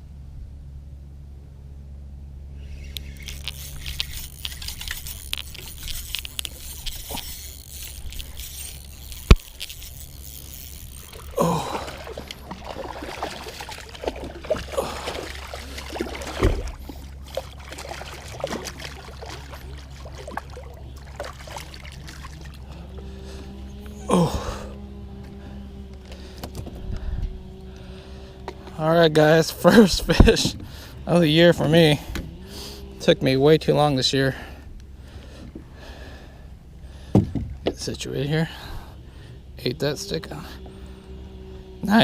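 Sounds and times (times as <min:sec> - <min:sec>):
water splashing and trickling: 0:03.0 - 0:23.4.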